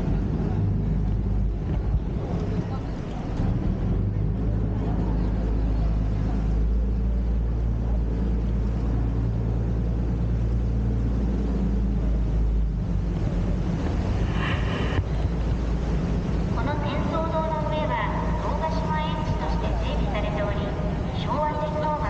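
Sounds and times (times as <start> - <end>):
boat engine droning: 0.0 - 22.0
water noise: 0.0 - 22.0
wind noise: 12.8 - 17.0.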